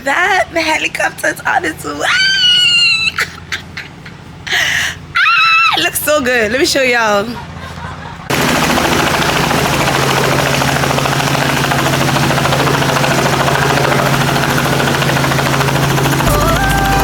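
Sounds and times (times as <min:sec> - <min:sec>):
helicopter rotor chopping: 0:05.8 - 0:17.0.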